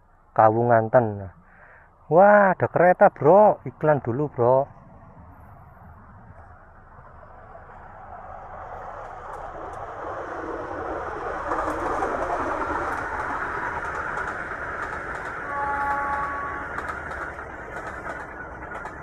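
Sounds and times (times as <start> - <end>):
passenger train rumbling past: 3.2 - 19.0
train horn: 15.4 - 17.0.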